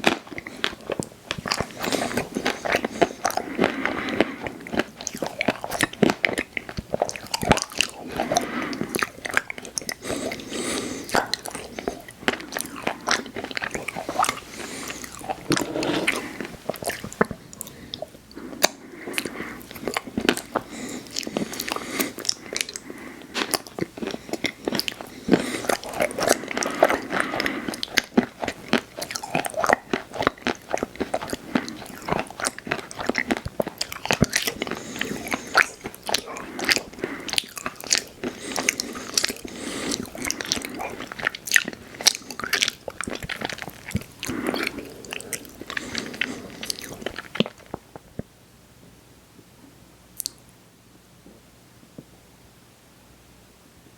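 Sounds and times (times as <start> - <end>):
crunchy chewing: 0.0 - 48.1.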